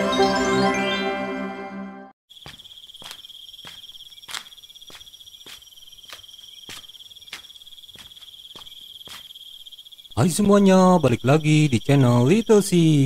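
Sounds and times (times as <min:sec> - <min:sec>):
crickets trilling: 0:02.3 - 0:13.0
footsteps: 0:02.4 - 0:09.4.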